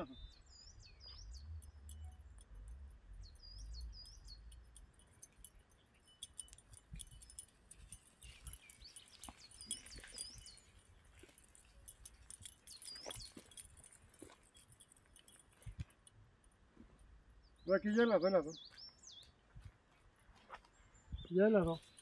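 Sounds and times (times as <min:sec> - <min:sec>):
bird chirping: 0:00.0 - 0:15.7, 0:17.4 - 0:19.6, 0:20.7 - 0:22.0
wind rumble on microphone: 0:20.8 - 0:22.0.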